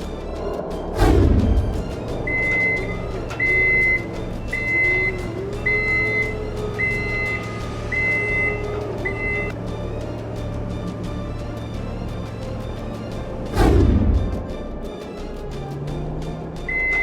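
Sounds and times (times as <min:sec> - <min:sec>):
low engine hum: 0:00.0 - 0:17.0
reversing alarm beeping: 0:01.5 - 0:09.6, 0:16.7 - 0:17.0.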